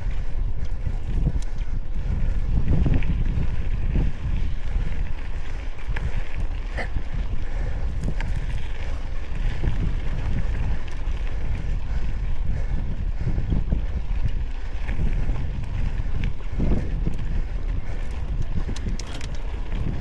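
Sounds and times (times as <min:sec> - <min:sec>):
wind buffeting microphone: 0:00.0 - 0:20.0
small clicks and rattles: 0:18.0 - 0:20.0.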